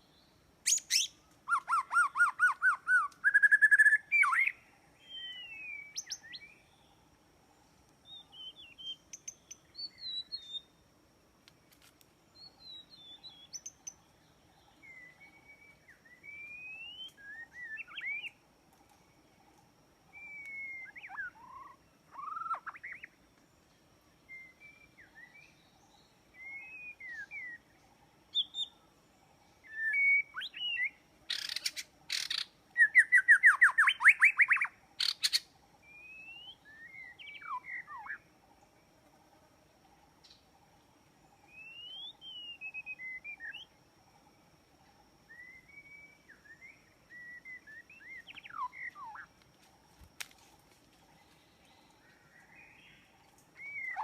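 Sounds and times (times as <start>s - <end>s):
songbird whistled phrases: 0.7s - 6.6s, 14.8s - 18.4s, 20.1s - 23.1s, 24.3s - 25.6s, 26.3s - 27.6s, 29.6s - 38.2s, 41.5s - 43.7s, 45.3s - 49.3s, 53.6s - 54.0s.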